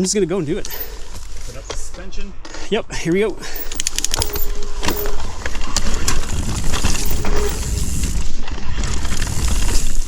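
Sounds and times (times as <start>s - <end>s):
bike chain and frame rattling: 0.6s - 1.6s, 3.5s - 10.0s
tyres rolling over dirt and rock: 3.6s - 10.0s.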